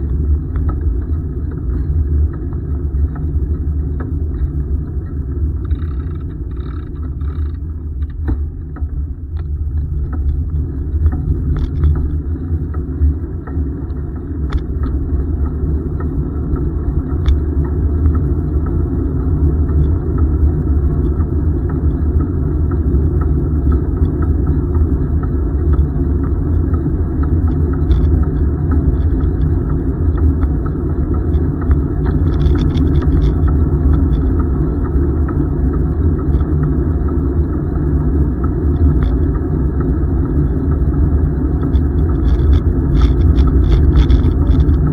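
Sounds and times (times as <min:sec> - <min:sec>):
faint ticks: 0:00.0 - 0:36.8, 0:38.2 - 0:44.9
wind buffeting microphone: 0:14.3 - 0:44.9.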